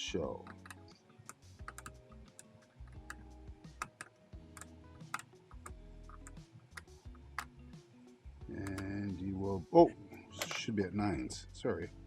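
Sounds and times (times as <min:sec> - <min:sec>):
background music: 0:00.0 - 0:12.0
numbering machine metal clicks: 0:10.4 - 0:10.7.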